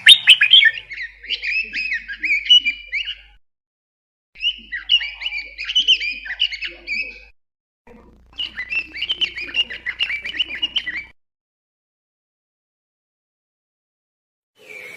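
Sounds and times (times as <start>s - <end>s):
songbird chirping: 0.0s - 3.4s, 4.4s - 7.3s, 7.9s - 11.2s.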